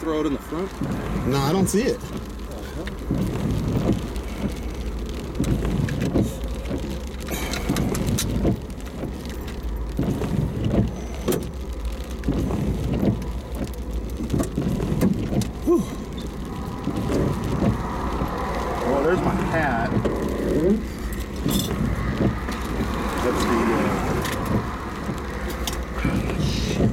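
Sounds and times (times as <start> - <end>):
wind and rain buffeting a car: 0.0 - 26.9
short knocks and rustles: 19.9 - 26.9.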